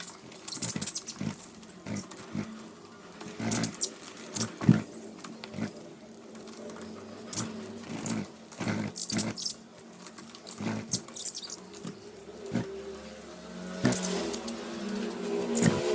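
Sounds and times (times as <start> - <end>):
birds pecking and cracking seed: 0.0 - 12.8.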